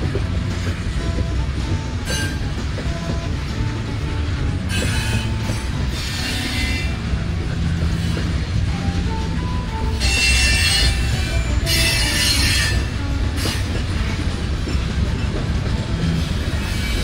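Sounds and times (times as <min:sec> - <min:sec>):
freight train wheels rumbling: 0:00.0 - 0:17.0
wheel squeal: 0:01.0 - 0:03.4, 0:04.7 - 0:14.8, 0:16.0 - 0:17.0.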